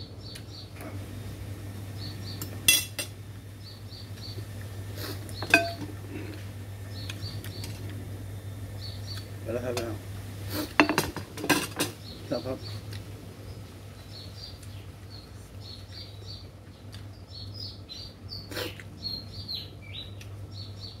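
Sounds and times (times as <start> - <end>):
small birds chirping: 0.0 - 21.0
steady low hum: 0.0 - 21.0
spoon and fork clinking on plate: 2.4 - 3.1, 5.4 - 5.9.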